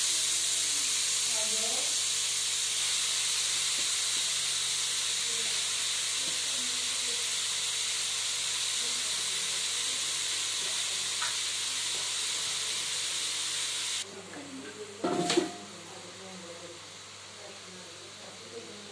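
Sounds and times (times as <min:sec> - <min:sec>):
carrots sizzling in a pan: 0:00.0 - 0:14.1.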